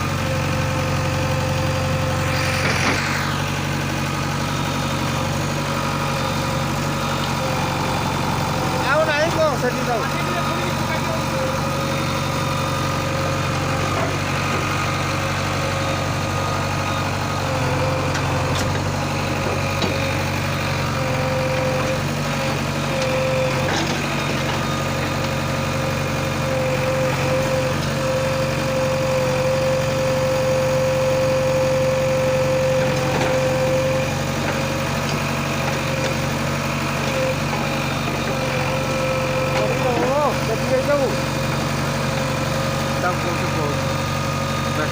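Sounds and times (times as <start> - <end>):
diesel engine running: 0.0 - 44.9
high whine: 2.0 - 5.3.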